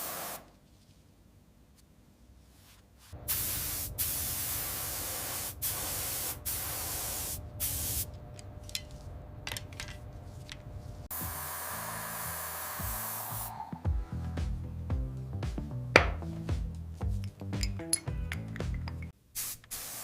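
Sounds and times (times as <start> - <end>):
pressurised spray hissing: 0.0 - 0.5, 3.3 - 8.1, 11.1 - 13.7, 19.4 - 20.0.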